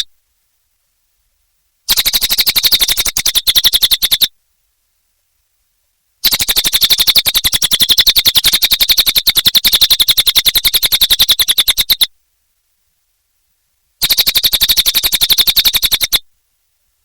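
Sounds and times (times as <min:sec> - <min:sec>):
bird trilling: 0:01.9 - 0:04.3, 0:06.2 - 0:12.1, 0:14.0 - 0:16.2.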